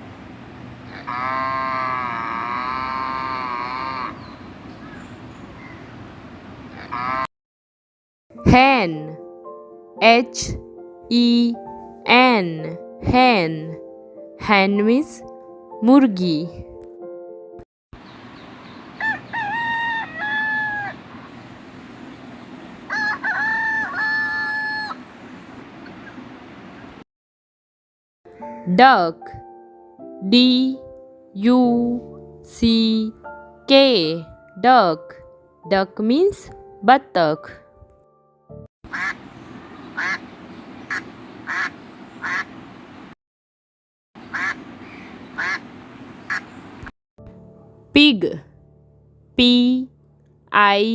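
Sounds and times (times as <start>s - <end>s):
duck quacking: 0.9s - 4.2s, 6.8s - 7.3s, 38.9s - 39.3s, 39.9s - 40.3s, 40.9s - 42.5s, 44.2s - 46.5s
rooster crowing: 0.9s - 4.3s, 18.6s - 21.5s, 22.7s - 25.1s.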